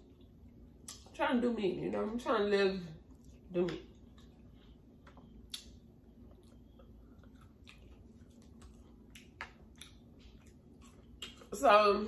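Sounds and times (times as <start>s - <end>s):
person chewing food: 3.1s - 11.6s.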